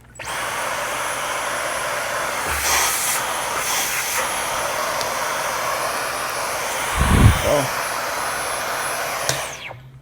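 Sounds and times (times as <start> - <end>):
blower rushing air: 0.3 - 8.5.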